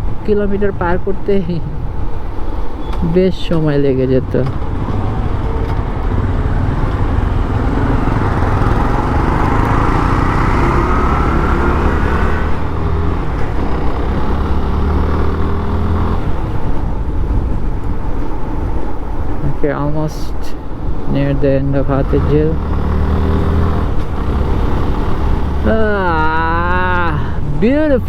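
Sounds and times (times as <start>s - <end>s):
wind and road noise: 0.0s - 28.0s
motorcycle engine running: 4.4s - 18.3s, 22.0s - 27.1s.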